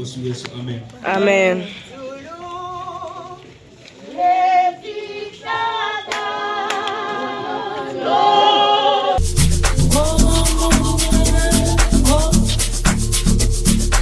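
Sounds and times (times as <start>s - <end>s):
choir singing unaccompanied: 2.0s - 14.0s
music track with beat and bass: 9.2s - 14.0s.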